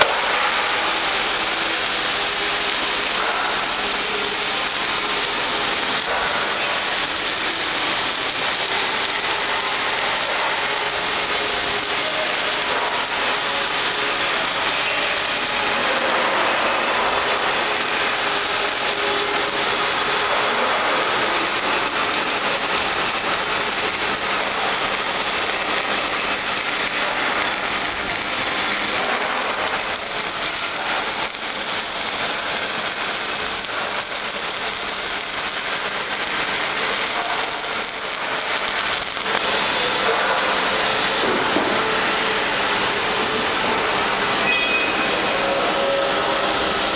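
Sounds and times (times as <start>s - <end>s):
welding arc crackling: 0.0s - 46.9s.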